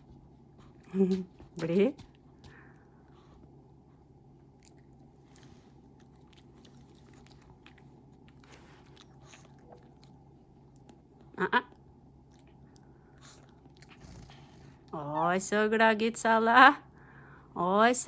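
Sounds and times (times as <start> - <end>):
dog chewing a treat: 4.5 - 11.1, 12.2 - 14.8.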